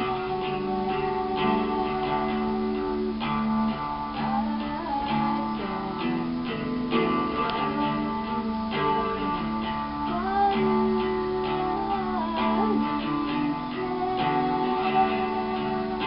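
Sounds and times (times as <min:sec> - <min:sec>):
acoustic guitar plucking and strumming: 0:00.0 - 0:16.0.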